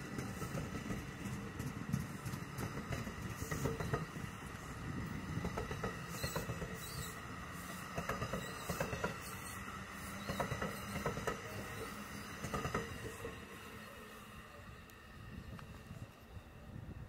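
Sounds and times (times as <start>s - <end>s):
train rumbling on rails: 0.0s - 17.0s
wheel clicks and squeaks: 5.8s - 7.2s, 8.0s - 12.9s.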